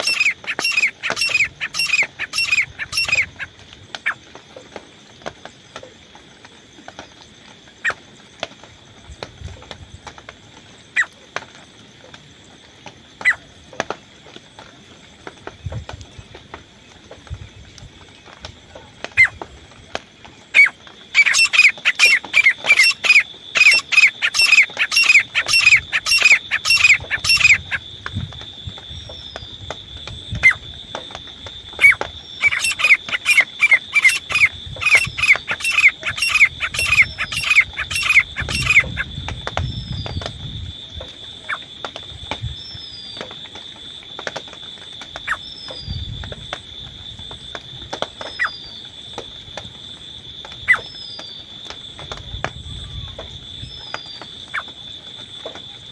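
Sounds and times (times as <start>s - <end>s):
francolin calling: 0.0s - 4.2s, 20.5s - 27.8s, 30.3s - 40.3s, 45.2s - 46.1s, 48.2s - 48.8s, 50.6s - 51.4s, 52.6s - 54.8s.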